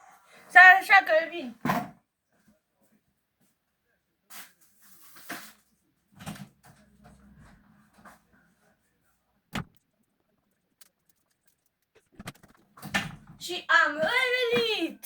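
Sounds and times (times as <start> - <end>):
knocks and clicks: 9.5 - 9.9, 10.8 - 13.3.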